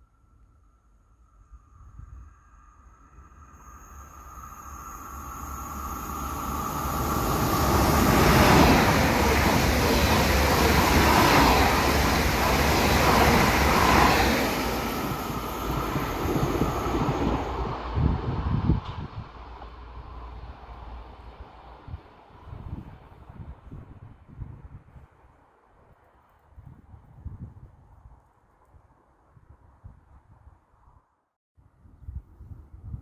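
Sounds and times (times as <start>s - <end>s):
train passing through station: 1.3s - 26.4s.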